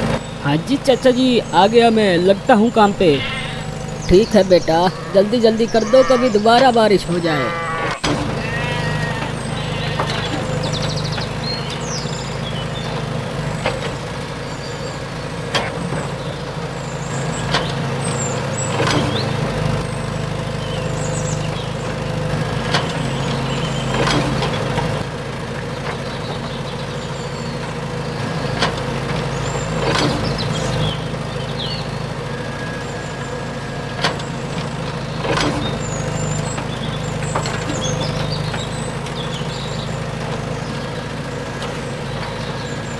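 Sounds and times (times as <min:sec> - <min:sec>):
small electric motor running: 0:02.1 - 0:06.7, 0:07.3 - 0:15.4.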